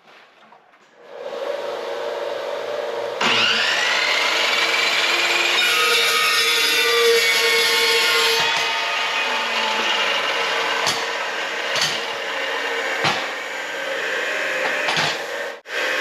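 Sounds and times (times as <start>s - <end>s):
power tool screeching on steel: 3.2s - 16.0s.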